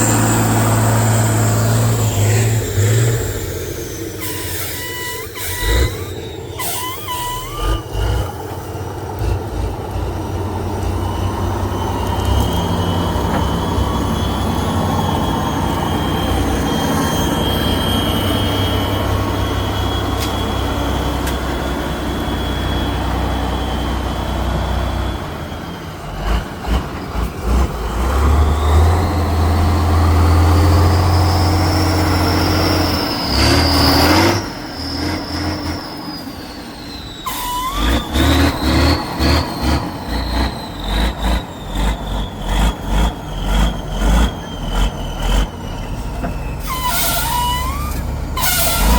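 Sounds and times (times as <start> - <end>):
truck engine running hard: 0.0 - 48.9.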